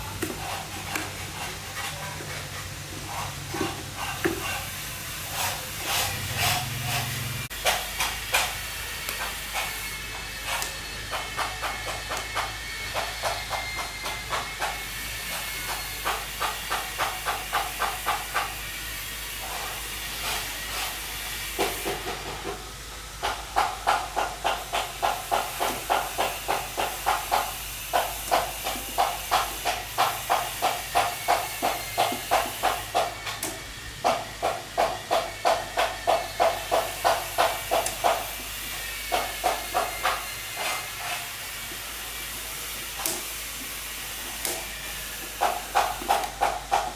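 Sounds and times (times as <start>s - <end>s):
rhythmic scraping strokes: 0.0s - 22.4s, 34.0s - 46.9s.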